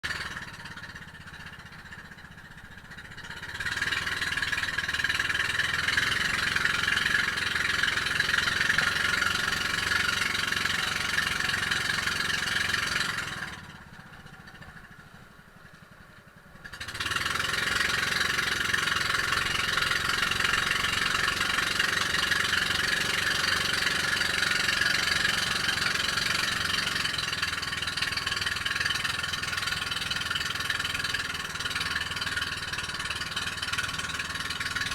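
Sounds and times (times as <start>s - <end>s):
boat engine running: 0.0s - 15.0s, 16.5s - 34.9s.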